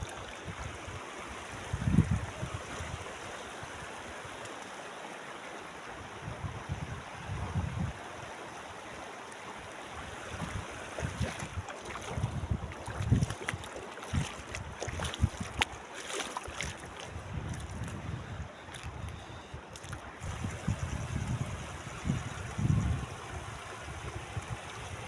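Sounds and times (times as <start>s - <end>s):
wind buffeting microphone: 1.6s - 3.0s, 6.2s - 8.0s, 10.0s - 15.7s, 16.5s - 25.0s
river water rushing: 8.0s - 17.2s.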